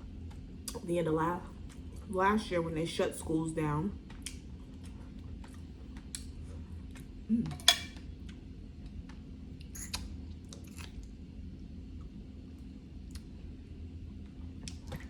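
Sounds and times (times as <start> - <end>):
person chewing: 9.7 - 11.1.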